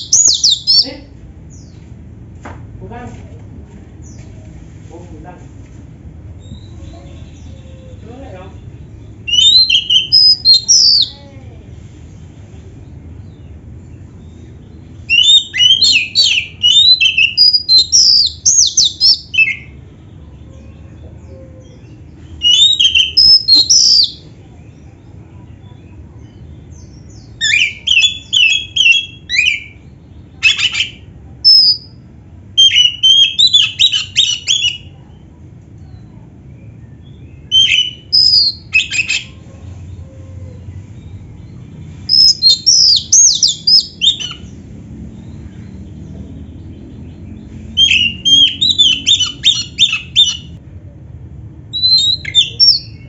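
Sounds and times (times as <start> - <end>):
bird chirping and whistling: 0.0 - 1.0, 6.4 - 6.8, 9.2 - 11.2, 15.1 - 19.8, 21.6 - 24.2, 26.9 - 29.8, 30.4 - 32.0, 32.6 - 34.9, 36.9 - 39.3, 42.0 - 44.6, 47.7 - 50.6, 51.7 - 53.0.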